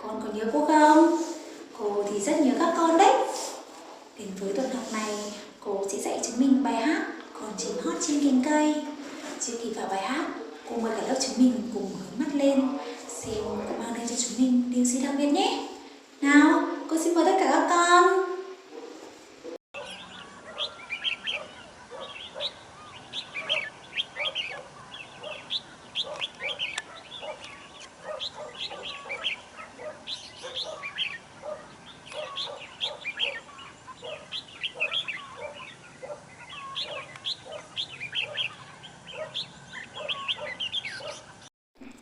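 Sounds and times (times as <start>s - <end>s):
birds chirping: 19.8s - 41.5s.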